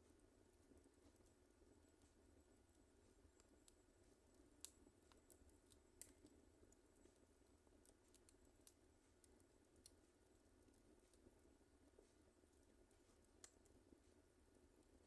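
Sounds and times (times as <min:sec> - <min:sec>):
low steady hiss: 0:00.0 - 0:15.0
wood fire crackling: 0:00.0 - 0:15.0
fire pops and snaps: 0:04.6 - 0:07.2.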